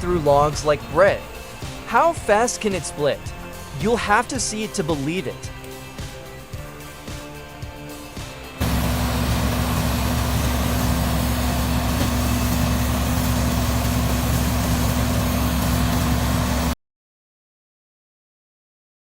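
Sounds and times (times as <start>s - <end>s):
log splitter engine hum: 8.6s - 16.8s.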